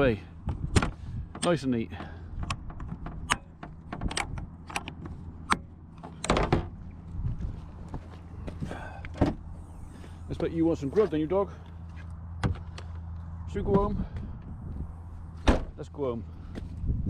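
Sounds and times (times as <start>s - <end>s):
engine idling hum: 0.0s - 17.0s
clicks and knocks of handled things: 0.5s - 6.7s.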